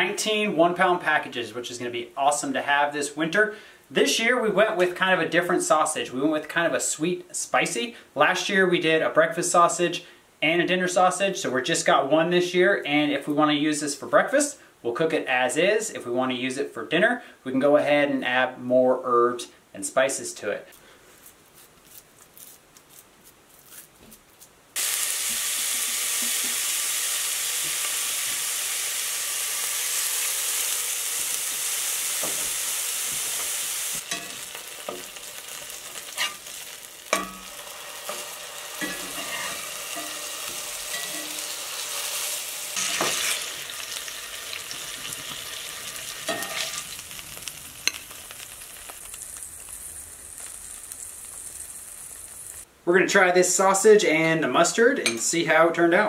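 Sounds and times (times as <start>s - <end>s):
sausage patties sizzling: 24.8s - 52.7s
metal spatula clicking and scraping: 36.0s - 36.5s, 38.8s - 41.4s, 46.3s - 46.8s.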